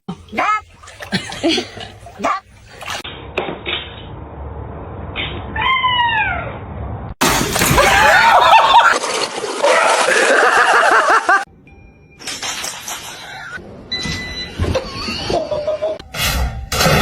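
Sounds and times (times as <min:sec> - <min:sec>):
cats yowling: 0:05.6 - 0:06.6.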